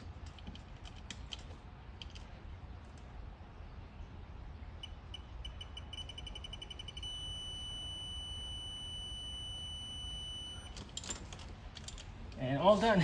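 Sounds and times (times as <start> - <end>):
steady beep tone: 4.8 - 10.7
torque wrench adapter beeping: 5.4 - 11.2.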